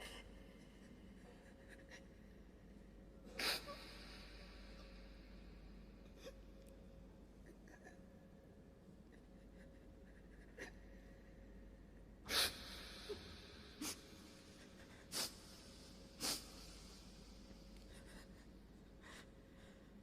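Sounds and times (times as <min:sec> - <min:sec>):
faint room noise: 0:00.0 - 0:20.0
sharp breaths through the nose: 0:15.0 - 0:17.5.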